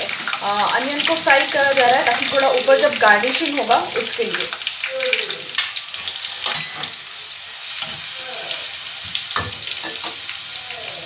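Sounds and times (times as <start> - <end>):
food sizzling in hot oil: 0.0 - 11.0
steel spatula scraping a pan: 5.5 - 8.2.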